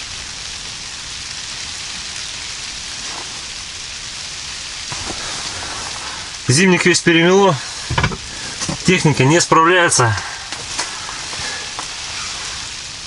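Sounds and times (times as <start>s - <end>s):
weather hissing on tent fabric: 0.0s - 13.0s
faint knocks: 7.9s - 8.8s.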